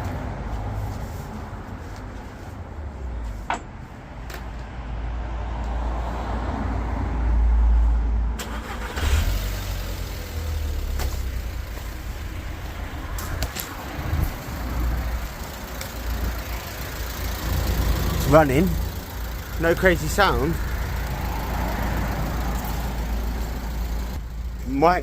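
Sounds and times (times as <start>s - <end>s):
car engine starting and idling: 8.3s - 25.0s.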